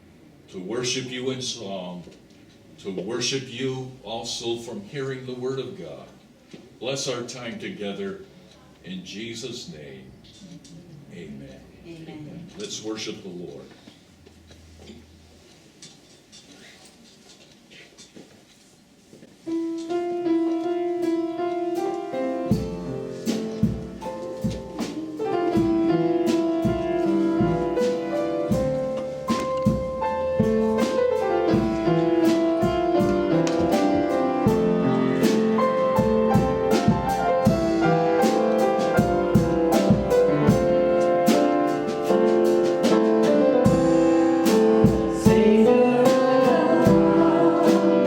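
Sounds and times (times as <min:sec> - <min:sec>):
keyboard chords: 0:19.5 - 0:48.0
drum beats: 0:21.0 - 0:48.0
bass: 0:22.5 - 0:48.0.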